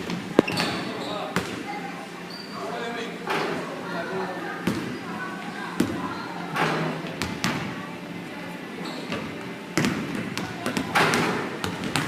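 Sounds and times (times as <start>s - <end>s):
basketballs bouncing on hard court: 9.8s - 12.0s.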